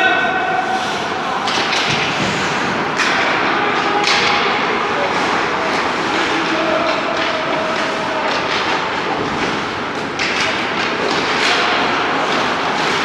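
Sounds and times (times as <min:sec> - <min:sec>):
sticks and puck clacking: 0:00.0 - 0:13.0
skate blades scraping ice: 0:00.5 - 0:03.6, 0:07.7 - 0:13.0.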